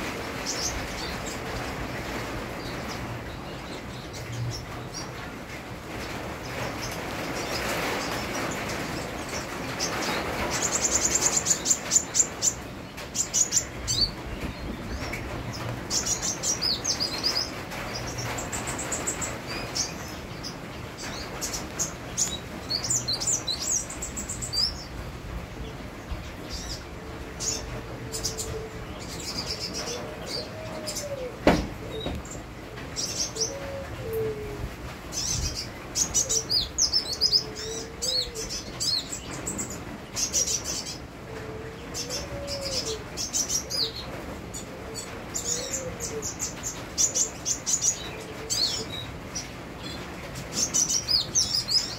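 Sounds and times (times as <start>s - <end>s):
rain hiss: 0.0s - 51.9s.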